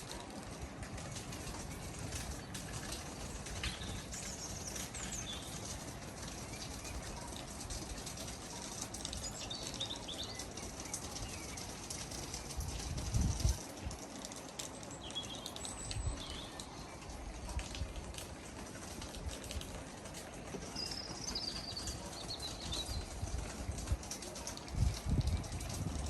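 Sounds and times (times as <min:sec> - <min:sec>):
birds chirping and trilling: 0:14.8 - 0:17.1, 0:20.6 - 0:23.2.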